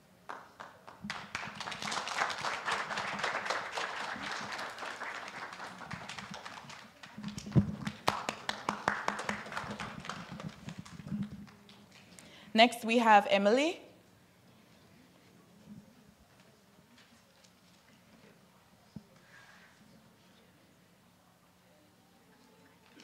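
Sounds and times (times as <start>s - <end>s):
congregation applauding: 0.3s - 12.4s.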